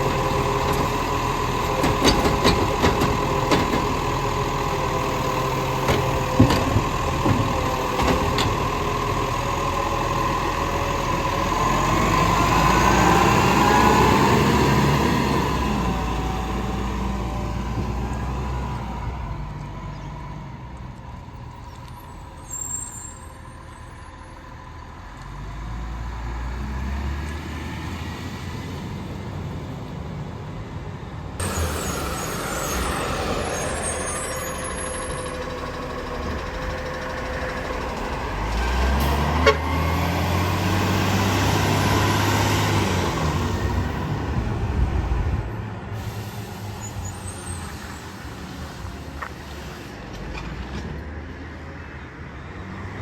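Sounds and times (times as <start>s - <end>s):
garbage truck engine revving: 0.0s - 19.5s, 31.4s - 45.4s.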